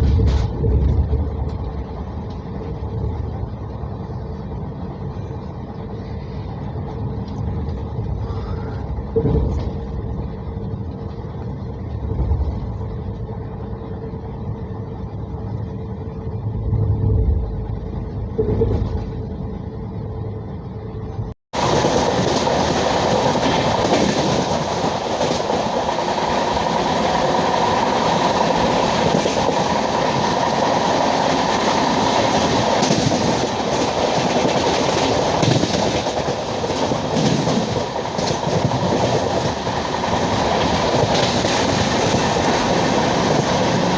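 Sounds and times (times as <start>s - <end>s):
train coaches running on track: 0.0s - 43.9s
train rushing at speed: 0.0s - 43.9s
thumps of train wheels: 21.6s - 43.9s.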